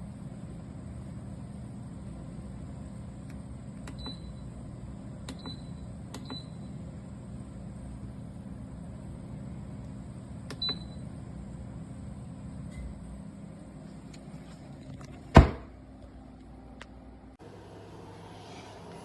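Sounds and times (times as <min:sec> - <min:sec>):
low mechanical hum: 0:00.0 - 0:19.0
click: 0:05.3 - 0:06.4.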